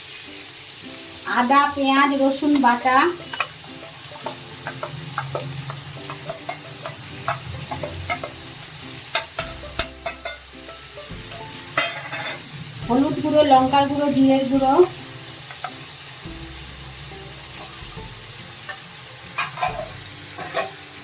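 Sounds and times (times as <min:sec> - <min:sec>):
food sizzling in oil: 0:00.0 - 0:21.0
spatula scraping a pan: 0:02.5 - 0:13.7, 0:18.6 - 0:21.0.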